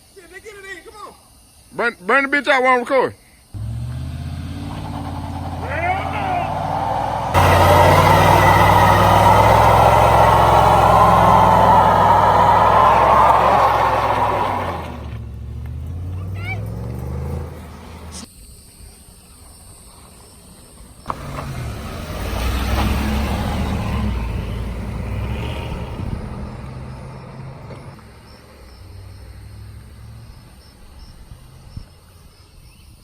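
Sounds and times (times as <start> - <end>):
truck engine revving: 3.6 - 18.3, 21.1 - 31.9
tyre and engine rush: 3.6 - 18.3, 21.0 - 32.1.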